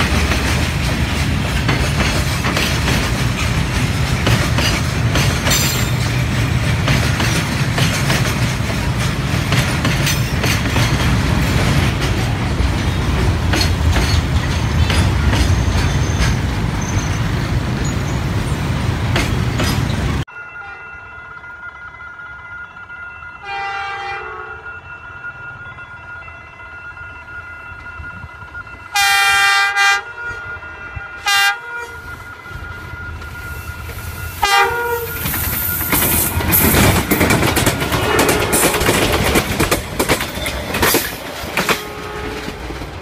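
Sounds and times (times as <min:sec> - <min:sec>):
train passing with rumble: 0:00.0 - 0:43.0
train horn blasts: 0:20.6 - 0:20.9, 0:23.4 - 0:24.8, 0:28.9 - 0:35.4, 0:37.8 - 0:39.2, 0:41.6 - 0:42.7.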